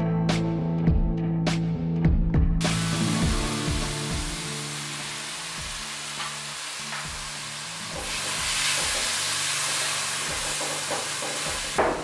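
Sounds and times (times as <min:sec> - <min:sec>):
chicken sizzling in hot oil: 0:02.6 - 0:12.0.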